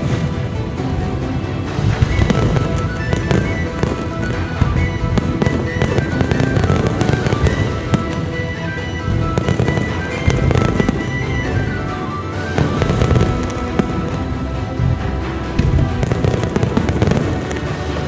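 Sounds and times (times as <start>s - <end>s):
fireworks banging and crackling: 0.0s - 18.0s
music with held melody: 0.0s - 18.0s.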